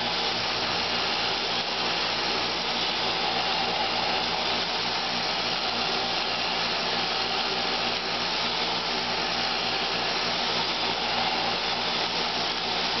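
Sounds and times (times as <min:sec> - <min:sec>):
robot vacuum whirring: 0:00.0 - 0:13.0.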